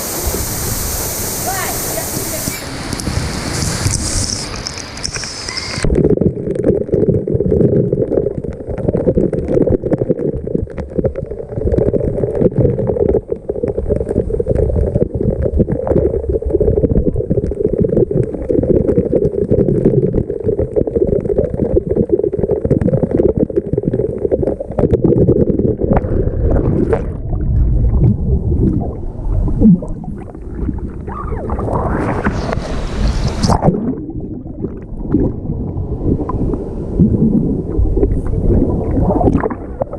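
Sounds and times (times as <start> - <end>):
splashing hiss: 0.0 - 5.8
muffled underwater waterfall rumble: 0.0 - 39.9.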